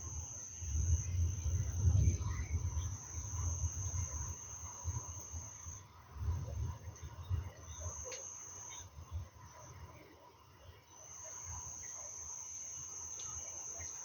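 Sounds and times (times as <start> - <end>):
low rumble: 1.0 - 4.1.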